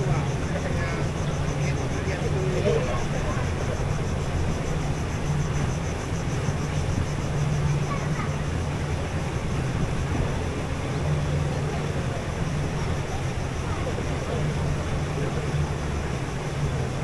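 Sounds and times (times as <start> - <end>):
outboard motor humming: 0.0 - 17.0.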